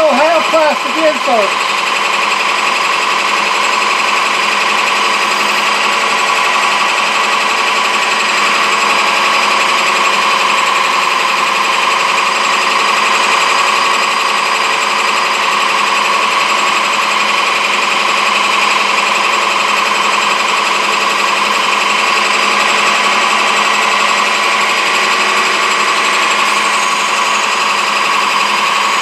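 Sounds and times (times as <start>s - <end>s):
metal lathe rattling: 0.0s - 29.0s.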